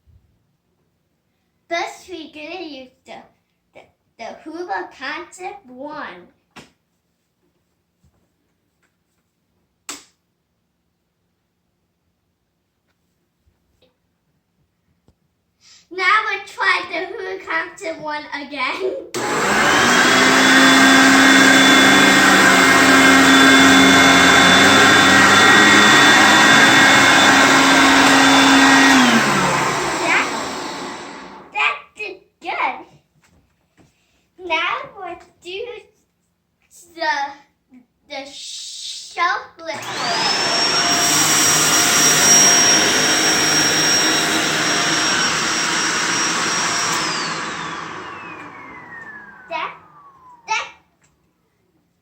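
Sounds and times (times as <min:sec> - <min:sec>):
vacuum cleaner running: 0:19.1 - 0:31.6, 0:39.7 - 0:50.5.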